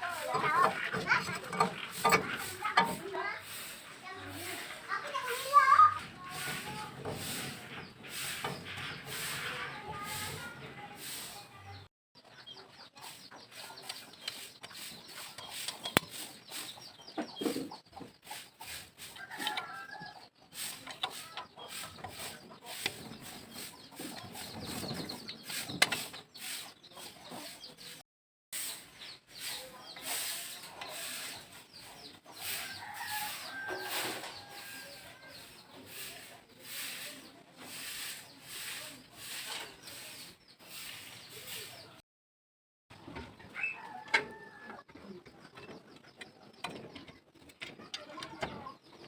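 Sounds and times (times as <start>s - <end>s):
scraping strokes: 0.0s - 11.7s, 13.0s - 16.8s, 17.4s - 28.0s, 28.6s - 42.0s
chickens clucking: 0.0s - 28.0s, 28.6s - 42.0s, 42.9s - 49.0s
rooster crowing: 19.2s - 20.2s, 32.7s - 35.3s.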